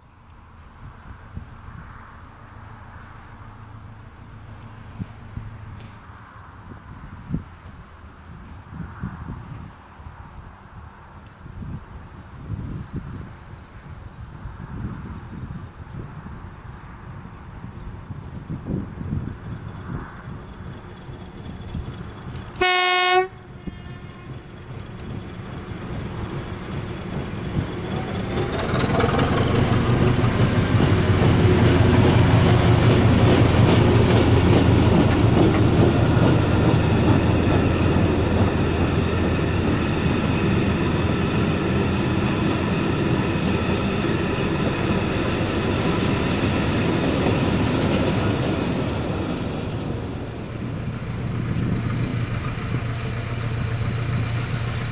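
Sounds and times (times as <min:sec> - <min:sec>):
diesel locomotive engine passing: 0:13.2 - 0:54.9
locomotive horn blast: 0:22.5 - 0:24.5
wagons rolling with rail clatter: 0:24.2 - 0:54.9.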